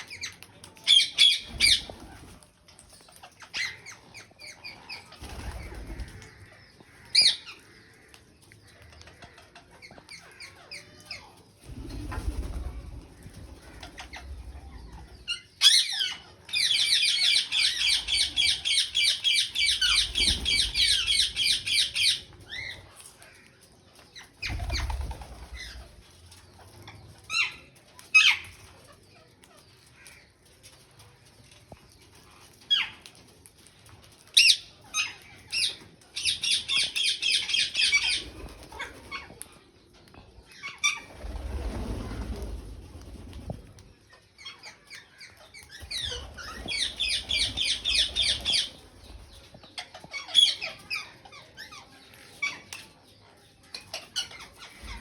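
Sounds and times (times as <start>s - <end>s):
parakeet chatter: 0.0s - 2.4s, 3.0s - 23.5s, 34.3s - 39.7s, 44.1s - 55.0s
parakeets squawking: 45.8s - 48.7s.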